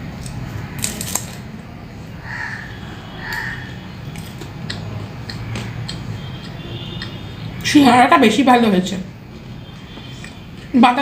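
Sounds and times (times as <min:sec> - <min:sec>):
crow cawing: 0:02.2 - 0:03.9.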